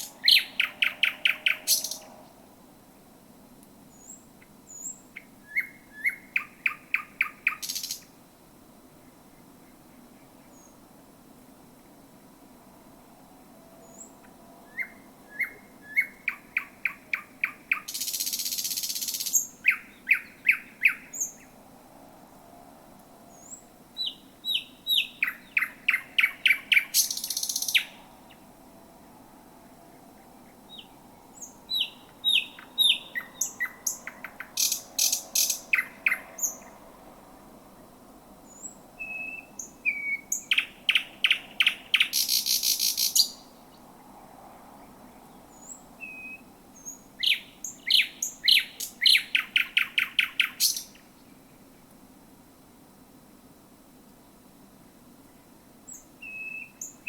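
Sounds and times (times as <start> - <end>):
nightingale singing: 0.0 - 2.4, 3.9 - 8.2, 13.6 - 21.6, 23.3 - 36.8, 37.7 - 44.1, 44.8 - 52.0, 55.2 - 57.0.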